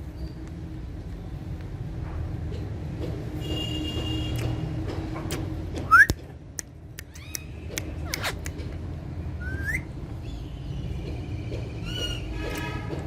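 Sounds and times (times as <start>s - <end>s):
sharp clicks: 6.0s - 8.9s
parrots whistling: 9.4s - 9.9s.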